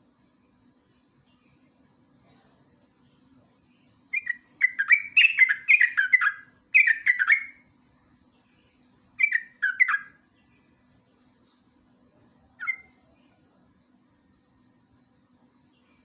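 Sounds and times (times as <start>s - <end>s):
bird singing chattering notes: 4.1s - 7.6s, 9.2s - 10.2s, 12.6s - 13.0s.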